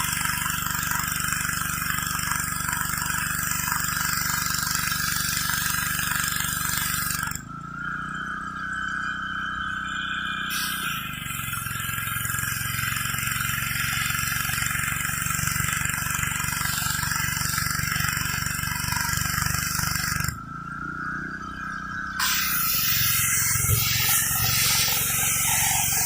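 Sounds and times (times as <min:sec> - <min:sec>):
pressure washer engine running: 0:00.0 - 0:07.5, 0:09.8 - 0:20.4, 0:22.2 - 0:26.0
water jet hissing on concrete: 0:10.5 - 0:20.3, 0:22.2 - 0:26.0.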